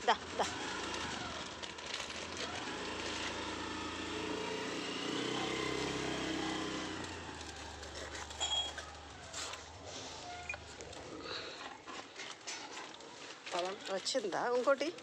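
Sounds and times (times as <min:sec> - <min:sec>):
vehicle engine passing by: 0:02.4 - 0:11.6.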